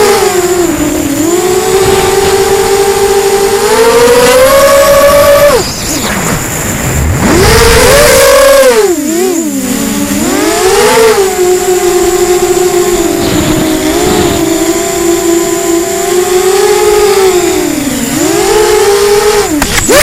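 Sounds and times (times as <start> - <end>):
drone motors whining: 0.0 - 20.0
wind rush: 0.6 - 10.2, 11.2 - 15.2.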